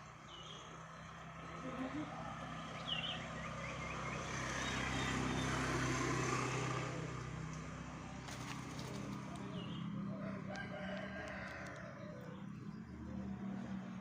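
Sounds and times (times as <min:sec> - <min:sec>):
bird chirping: 0:00.0 - 0:01.4, 0:02.5 - 0:05.6
vehicle passing by: 0:00.0 - 0:14.0.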